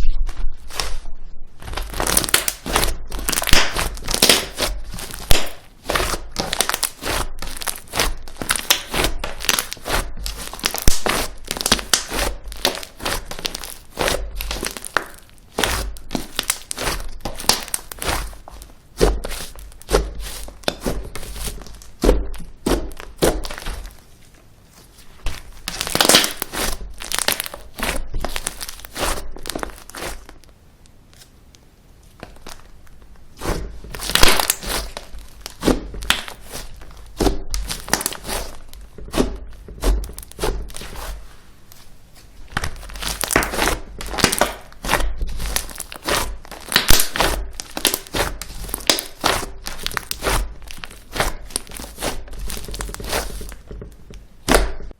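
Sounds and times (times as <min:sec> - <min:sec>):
slime crackling and clicking: 0:01.6 - 0:18.6, 0:25.3 - 0:30.5, 0:42.5 - 0:53.6.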